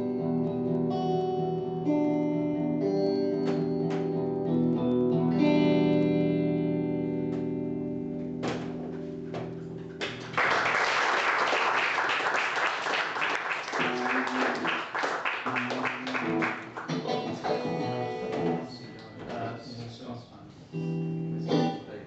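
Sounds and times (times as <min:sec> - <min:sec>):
picked guitar notes: 0:00.0 - 0:10.3, 0:15.5 - 0:20.0, 0:20.6 - 0:22.0
audience clapping: 0:10.0 - 0:17.9.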